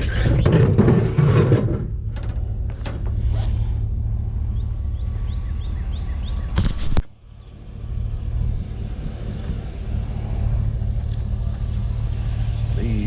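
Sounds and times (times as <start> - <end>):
loud clatter: 0.0 - 3.3
vehicle engine low rumble: 0.0 - 13.0.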